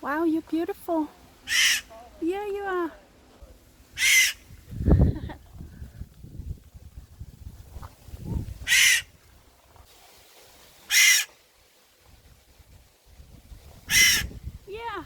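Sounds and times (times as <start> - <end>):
bird giving harsh rasping calls: 1.4 - 1.9, 4.0 - 4.5, 8.6 - 9.1, 10.9 - 11.3, 13.9 - 14.3.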